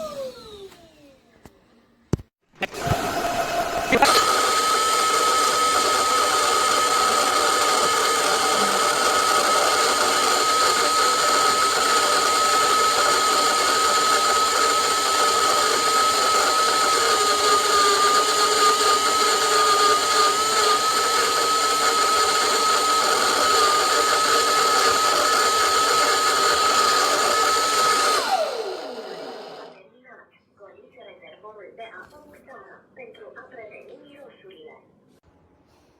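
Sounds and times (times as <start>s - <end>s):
vacuum motor whine: 0.0s - 1.6s, 2.6s - 29.8s.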